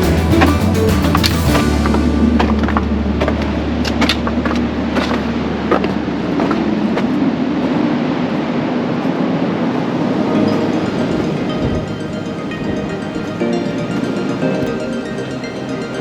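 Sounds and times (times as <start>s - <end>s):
wind buffeting microphone: 10.4s - 15.1s.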